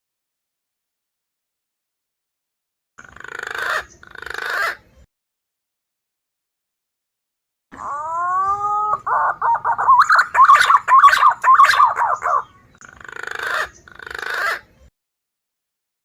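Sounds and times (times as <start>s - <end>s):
pigeon whistling calls: 7.8s - 12.7s
harsh rasping bird phrases: 7.8s - 14.7s.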